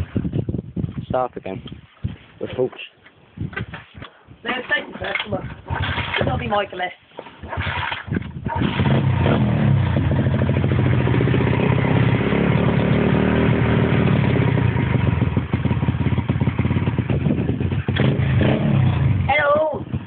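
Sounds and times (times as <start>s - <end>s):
motorbike engine running: 7.4s - 20.0s.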